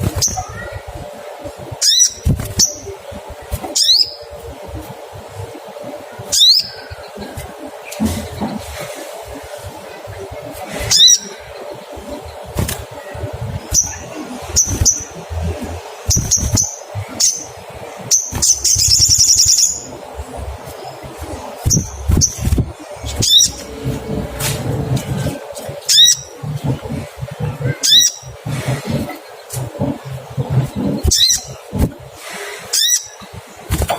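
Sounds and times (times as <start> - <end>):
bird chirping: 10.8 - 24.2
bird rattling trill: 16.0 - 20.0, 21.6 - 23.7.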